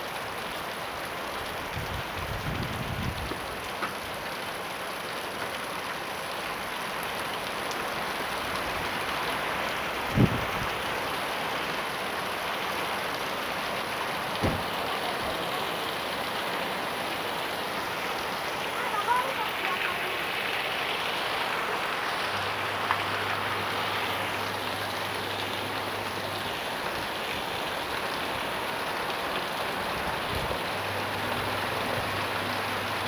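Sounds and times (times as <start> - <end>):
heavy rain falling: 0.0 - 33.0
dull thumps: 14.4 - 14.8.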